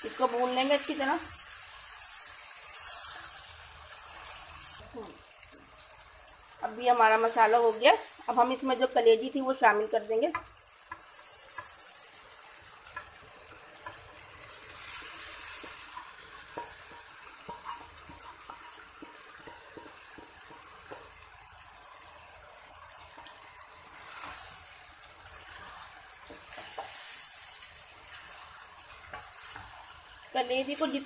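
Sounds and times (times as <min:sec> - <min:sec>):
liver sizzling in hot oil: 0:00.0 - 0:31.0
spoon stirring and clicking on pan: 0:10.2 - 0:31.0.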